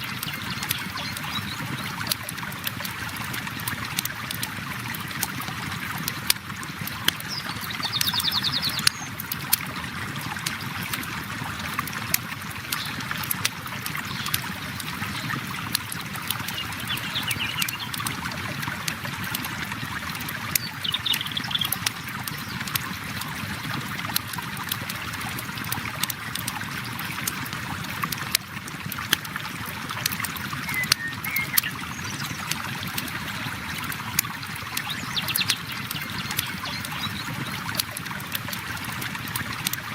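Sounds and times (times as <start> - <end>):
river water flowing: 0.0 - 39.9
campfire popping and snapping: 2.0 - 8.1, 8.7 - 16.5
bird chirps: 16.5 - 17.9, 30.6 - 32.3.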